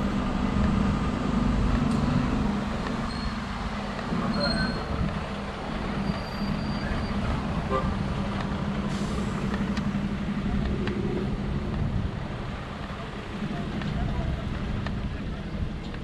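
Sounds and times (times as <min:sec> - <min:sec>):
road rumble: 0:00.0 - 0:16.0.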